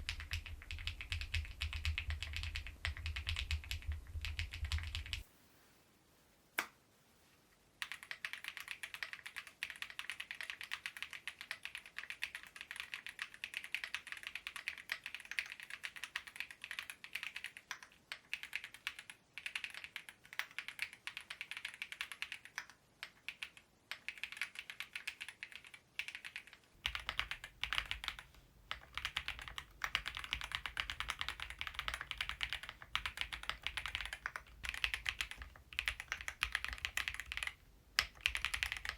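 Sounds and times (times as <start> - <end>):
mechanical keyboard typing: 0.0 - 5.2, 7.8 - 38.9
low background hum: 0.0 - 5.3.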